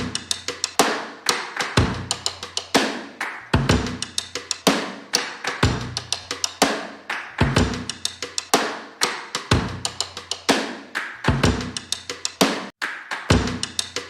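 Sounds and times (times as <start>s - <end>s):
kick drum: 0.0s - 0.2s, 1.8s - 2.2s, 3.5s - 4.1s, 5.6s - 6.0s, 7.4s - 7.9s, 9.5s - 9.9s, 11.3s - 11.9s, 13.3s - 13.8s
snare and cymbal strokes: 0.0s - 12.7s.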